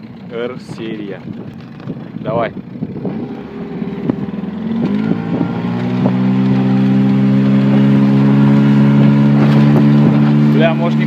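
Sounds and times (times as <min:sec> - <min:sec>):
outboard motor running: 0:00.0 - 0:11.0
whistle from motor: 0:04.8 - 0:05.8.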